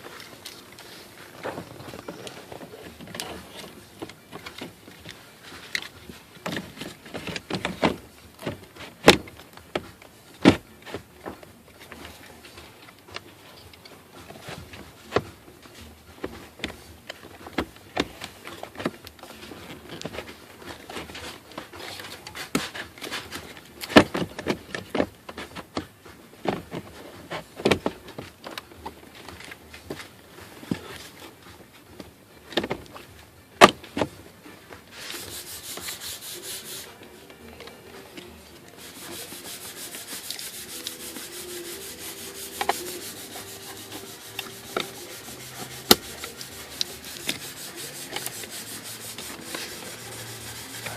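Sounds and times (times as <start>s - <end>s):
plastic parts clicking and knocking: 12.8s - 34.8s.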